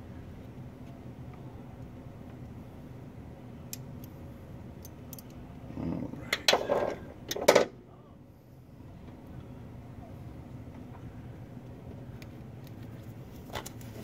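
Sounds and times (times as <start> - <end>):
light clicks of small parts: 4.8 - 5.4, 10.7 - 14.0.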